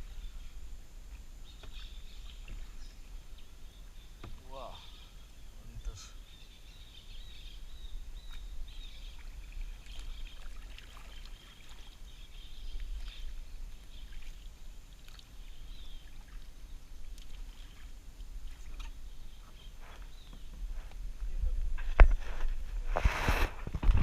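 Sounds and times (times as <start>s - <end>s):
water splashing against hull: 8.3s - 20.6s
kayak paddle strokes: 8.3s - 21.2s, 21.8s - 24.0s.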